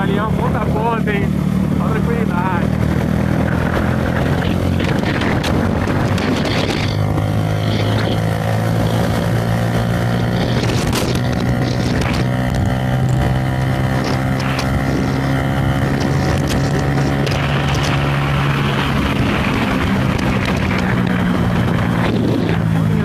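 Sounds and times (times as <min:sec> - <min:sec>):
motorcycle engine running: 0:00.0 - 0:23.0
wind noise on microphone: 0:00.0 - 0:23.0.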